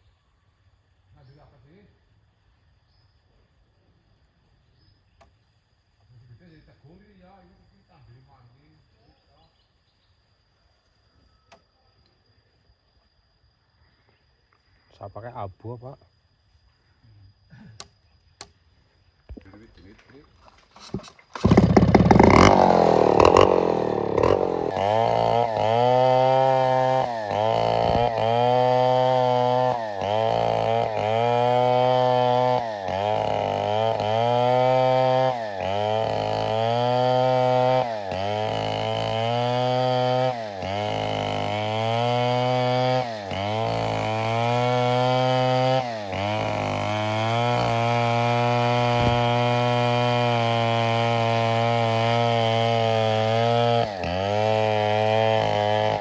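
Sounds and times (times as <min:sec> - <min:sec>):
chainsaw cutting wood: 0:20.6 - 0:56.0.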